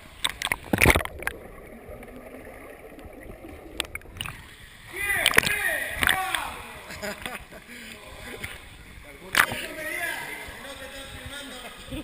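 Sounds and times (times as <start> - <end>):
sharp water splashes: 0.2 - 4.6, 5.2 - 6.5
steady wash of water: 0.4 - 7.0.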